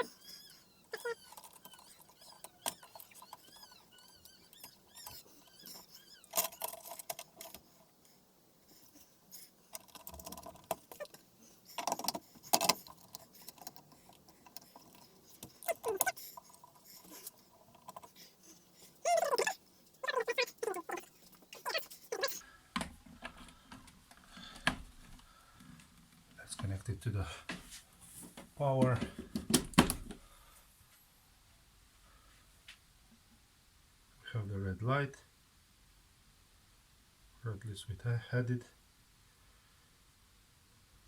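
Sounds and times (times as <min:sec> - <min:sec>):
short squeaky sweeps: 0:00.0 - 0:06.4
parts clicking and rattling: 0:04.5 - 0:07.6, 0:09.7 - 0:18.2.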